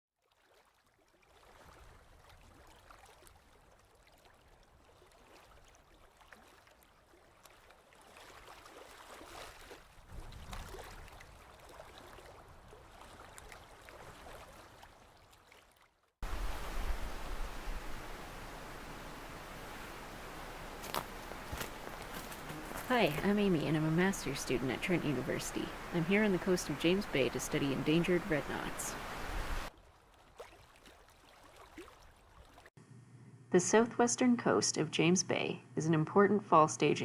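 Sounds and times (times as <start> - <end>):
faint running water: 10.8 - 32.7.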